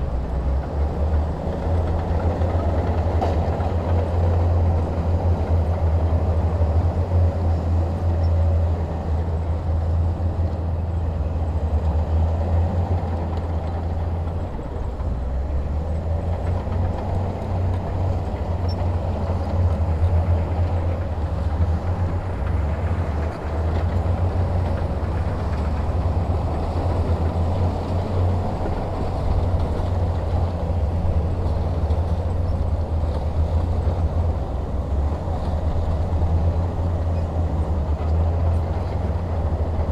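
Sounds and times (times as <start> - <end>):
heavy diesel engine rumbling: 0.0 - 39.9.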